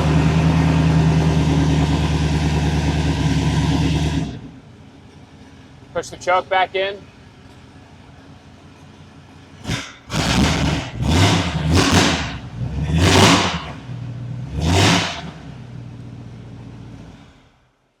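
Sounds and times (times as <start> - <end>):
loud car engine idling and revving: 0.0 - 17.9.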